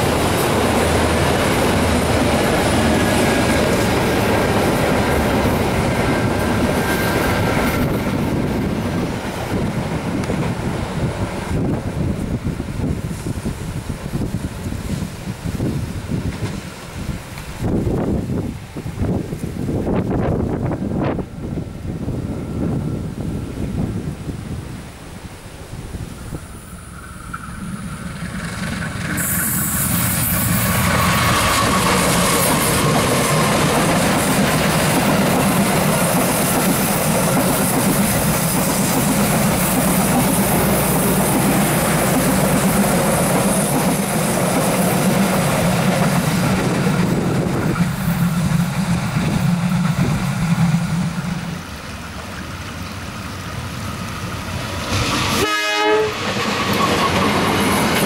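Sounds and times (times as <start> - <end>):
train rumbling and clattering: 0.0 - 58.0
train horn toot: 55.3 - 57.3.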